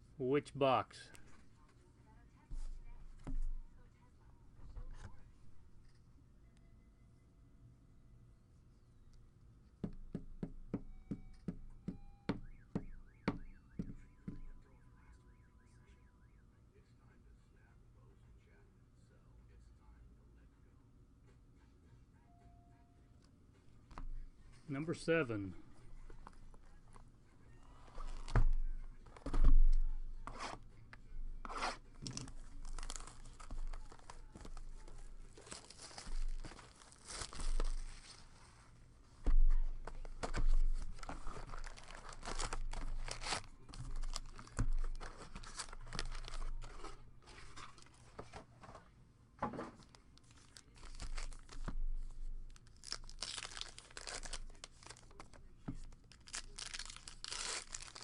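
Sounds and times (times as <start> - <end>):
wrapper tearing and crinkling: 31.5 - 38.3, 40.0 - 46.9, 50.2 - 51.7, 52.5 - 55.3, 55.9 - 58.0.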